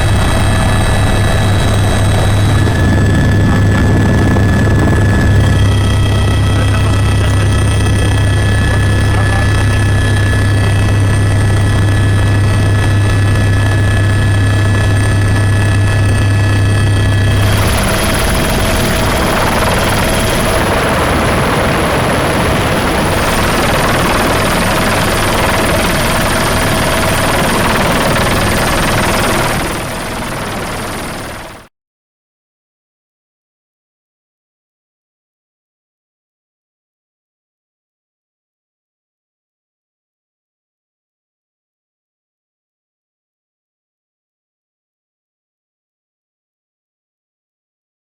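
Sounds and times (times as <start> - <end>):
helicopter rotor drone: 0.0 - 31.7
turbine whine: 0.0 - 31.7.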